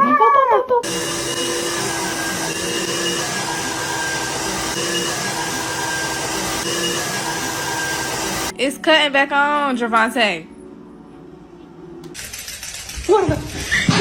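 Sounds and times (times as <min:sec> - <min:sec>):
electric motor whirring: 0:00.8 - 0:08.5.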